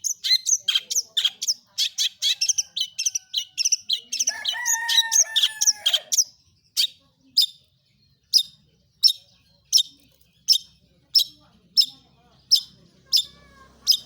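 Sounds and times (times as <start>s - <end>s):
bird chattering: 0.0s - 14.0s
sharp high bird calls: 8.3s - 14.0s.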